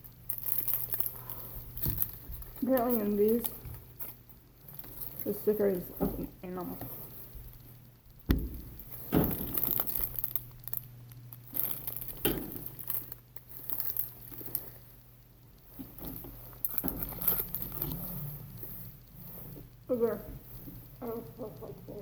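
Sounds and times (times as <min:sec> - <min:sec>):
packaging crinkling and rustling: 0:00.0 - 0:14.8, 0:15.6 - 0:18.3
sharp knocks: 0:08.3 - 0:09.4.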